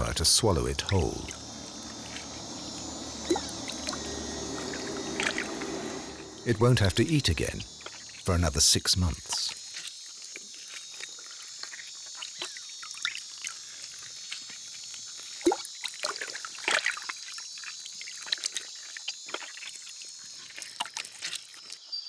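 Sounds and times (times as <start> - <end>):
water trickling and splashing: 0.0 - 6.4
insect chorus: 0.0 - 10.1.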